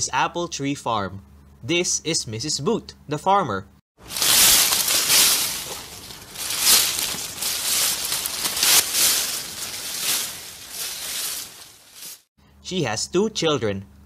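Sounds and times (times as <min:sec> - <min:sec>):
leaves rustling and crunching: 0:04.0 - 0:12.3.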